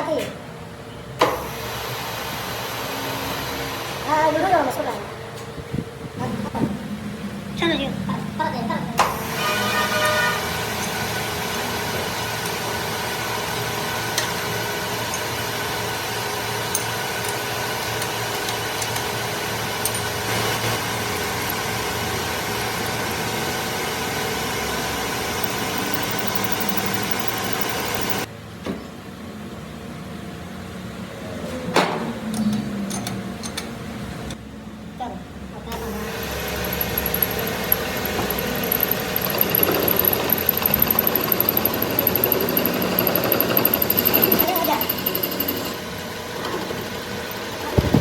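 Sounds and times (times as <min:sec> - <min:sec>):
machine running: 0:19.8 - 0:28.3, 0:36.0 - 0:48.0.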